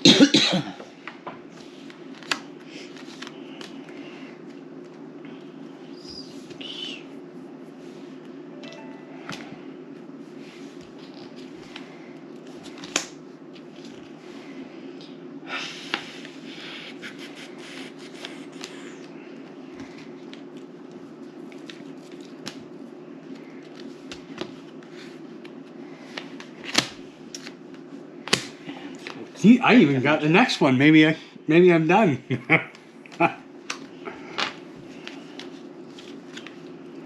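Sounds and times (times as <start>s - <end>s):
steady low hum: 0.0s - 37.0s
cards rustling: 1.6s - 5.0s, 19.8s - 29.2s, 33.7s - 36.8s.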